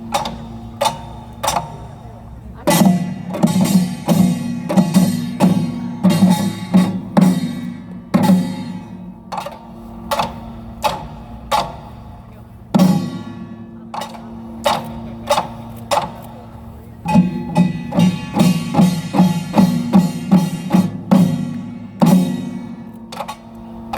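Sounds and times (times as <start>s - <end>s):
drums striking: 0.0s - 23.9s.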